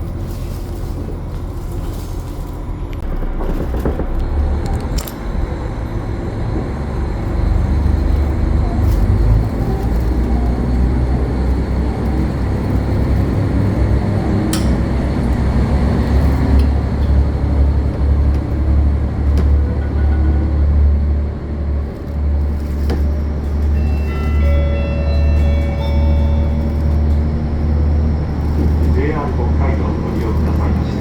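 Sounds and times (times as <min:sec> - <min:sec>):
diesel train rumbling: 0:00.0 - 0:31.0.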